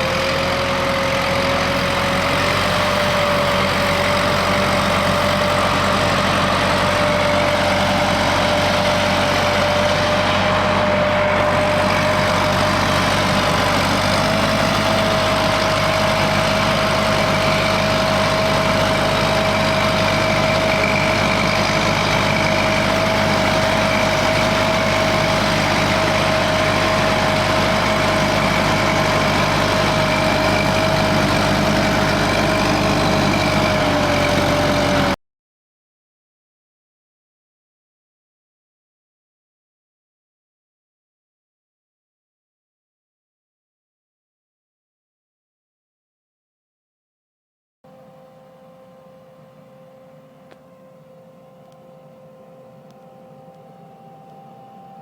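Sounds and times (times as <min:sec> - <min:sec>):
sprayer fan whine: 0:00.0 - 0:35.2, 0:47.9 - 0:55.0
tractor diesel engine running: 0:00.0 - 0:35.2, 0:47.9 - 0:55.0
rush of blowing air: 0:01.5 - 0:35.1.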